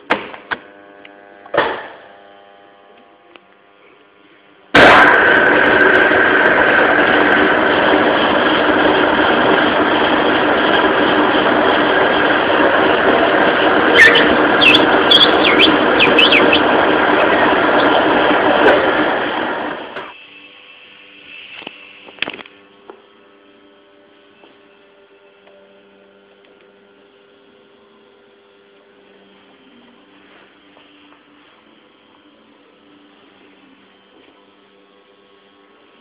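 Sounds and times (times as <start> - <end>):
lathe running loudly: 4.0 - 36.0
short high squeals: 13.9 - 16.7.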